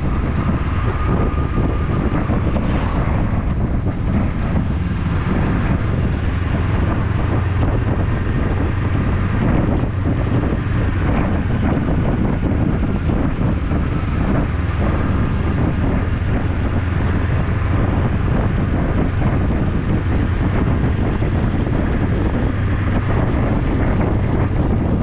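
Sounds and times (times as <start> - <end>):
motorcycle engine running: 0.0 - 25.0
wind rushing over microphone: 0.0 - 25.0.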